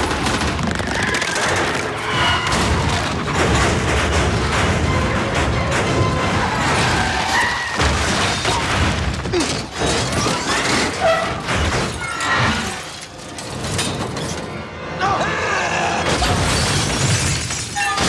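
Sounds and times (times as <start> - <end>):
smashing metal: 0.0 - 14.6, 16.1 - 18.0
car crashes: 0.4 - 14.5
shattering glass: 6.7 - 14.5, 16.1 - 18.0
orchestral film score: 10.9 - 16.5.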